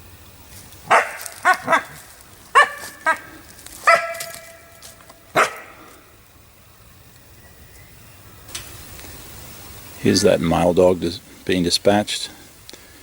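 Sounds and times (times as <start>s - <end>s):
dog whining yelp: 0.9s - 2.0s, 2.6s - 4.8s
dog yelping and barking: 0.9s - 5.8s.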